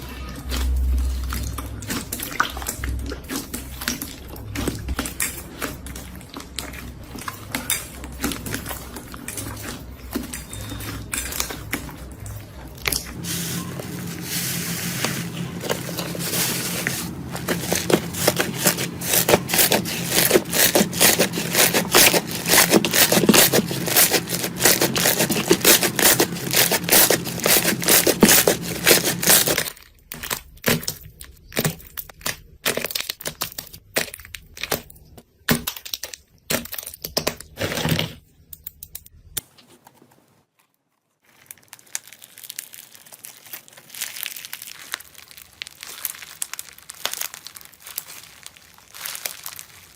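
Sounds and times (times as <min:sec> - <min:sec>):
slime crackling and popping: 0:14.6 - 0:37.6, 0:41.2 - 0:49.9.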